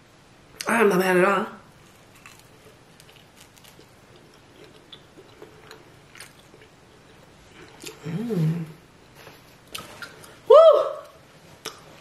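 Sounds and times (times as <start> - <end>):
faint biting and chewing: 1.8 - 8.2.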